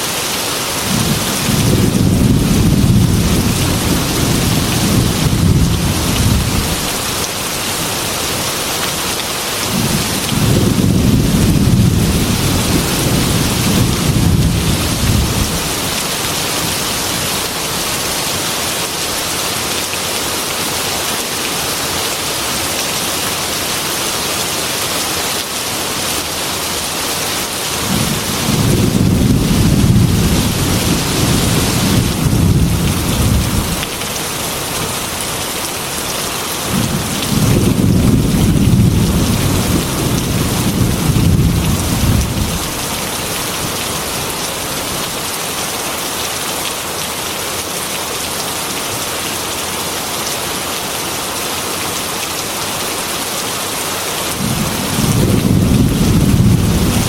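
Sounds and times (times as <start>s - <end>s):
heavy rain hissing: 0.0s - 57.0s
rolling thunder: 0.9s - 6.9s, 9.7s - 15.8s, 27.8s - 34.0s, 36.7s - 42.8s, 54.4s - 57.0s.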